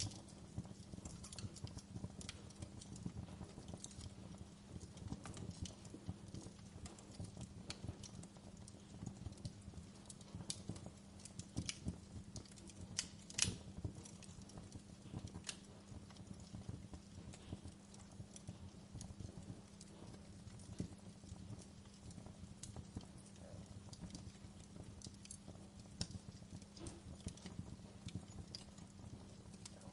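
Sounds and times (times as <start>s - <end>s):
wood fire crackling: 0.0s - 29.9s.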